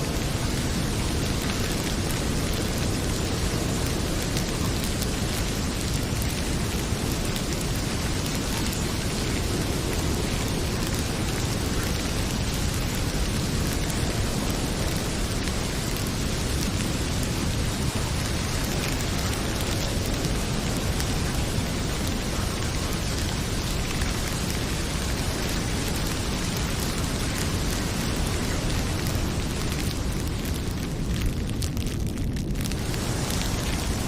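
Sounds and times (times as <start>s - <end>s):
faint wood fire crackles: 0.0s - 34.0s
heavy rain pouring: 0.0s - 34.0s.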